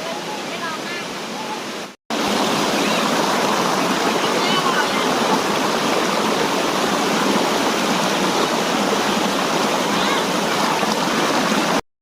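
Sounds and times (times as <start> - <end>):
waterfall rushing: 0.0 - 11.8.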